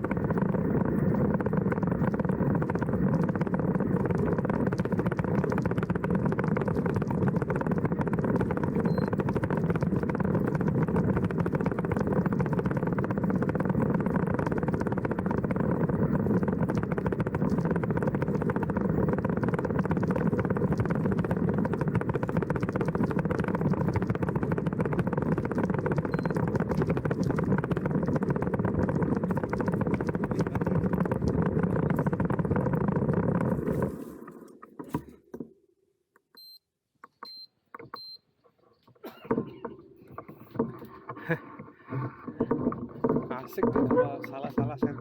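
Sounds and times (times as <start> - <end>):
short high-pitched beeps: 8.8 - 9.2, 26.1 - 26.4, 36.4 - 36.6, 37.2 - 38.2.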